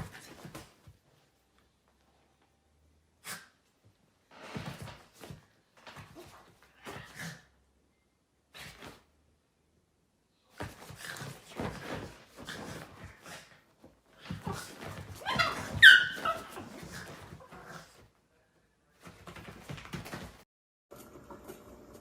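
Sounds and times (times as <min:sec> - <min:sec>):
high-pitched yelp: 0:15.2 - 0:16.6.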